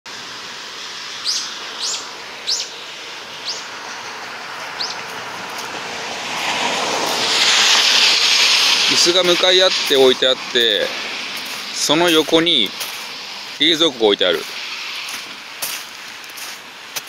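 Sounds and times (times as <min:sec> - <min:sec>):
outdoor rushing noise: 0:00.1 - 0:17.0
small bird chirping downward: 0:01.2 - 0:04.0, 0:04.8 - 0:05.0.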